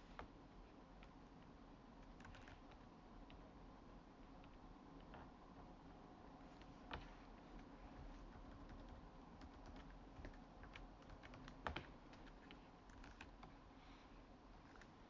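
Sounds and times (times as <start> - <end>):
low room hum: 0.0 - 15.0
computer keys clicking: 2.0 - 3.4, 6.6 - 13.6.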